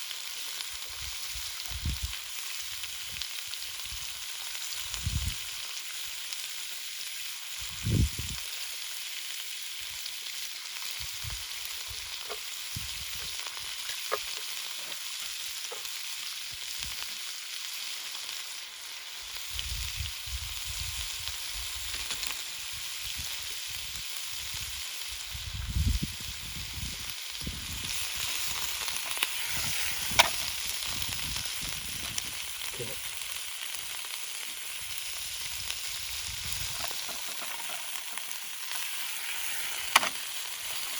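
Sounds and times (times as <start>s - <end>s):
food sizzling in a pot: 0.0s - 40.9s.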